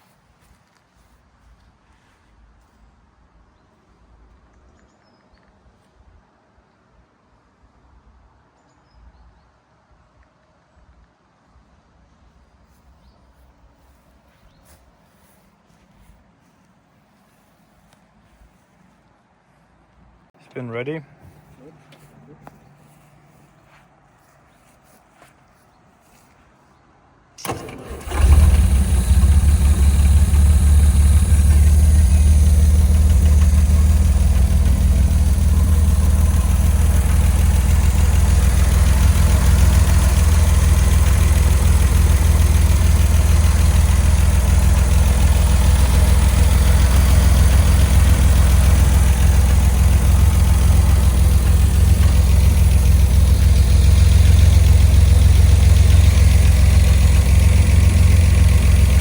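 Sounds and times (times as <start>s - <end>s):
car engine starting and idling: 27.4s - 59.0s.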